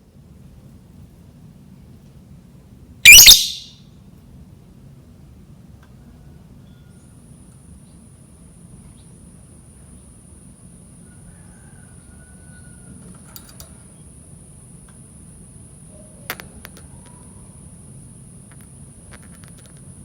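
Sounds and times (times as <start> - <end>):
faint short chirps: 3.1 - 3.7
quick clicks: 3.1 - 3.7
thin high whine: 3.1 - 3.7.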